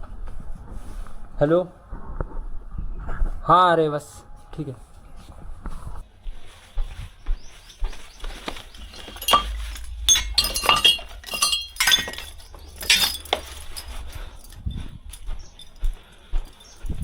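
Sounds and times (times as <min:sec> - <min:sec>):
metallic clinks and clanks: 0:08.5 - 0:16.9.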